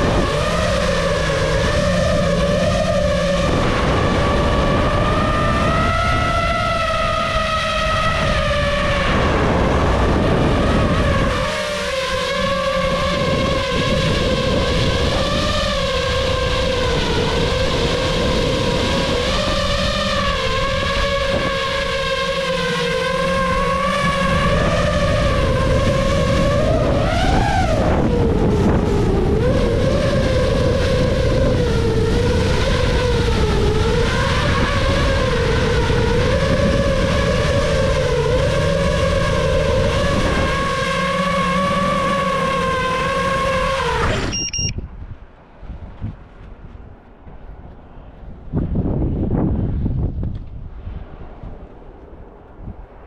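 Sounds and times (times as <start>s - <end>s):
quadcopter motors whining: 0.0s - 45.0s
wind buffeting microphone: 0.0s - 53.0s
brief beep: 44.2s - 44.9s.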